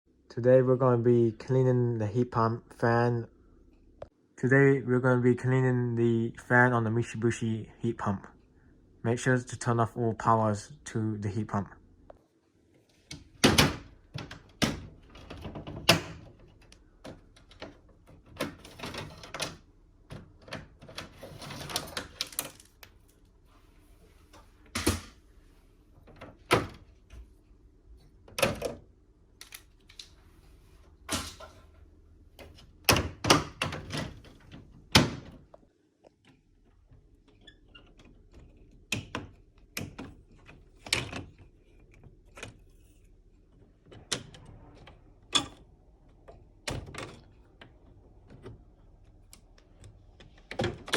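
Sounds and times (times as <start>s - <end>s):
plastic panels clicking and knocking: 13.1s - 22.8s, 26.0s - 27.2s, 28.2s - 30.1s, 32.4s - 35.6s, 36.2s - 50.9s.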